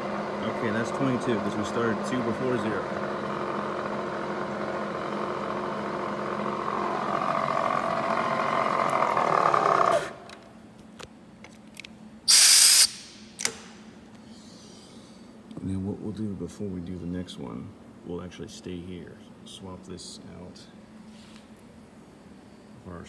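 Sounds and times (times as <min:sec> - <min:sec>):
milling machine spindle whine: 0:00.0 - 0:10.2
short loud hiss: 0:12.3 - 0:13.2.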